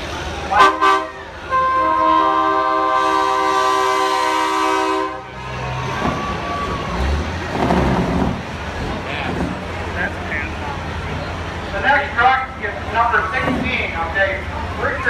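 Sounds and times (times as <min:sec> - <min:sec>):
low truck engine rumble: 0:00.0 - 0:15.0
truck air horn blast: 0:00.5 - 0:05.3.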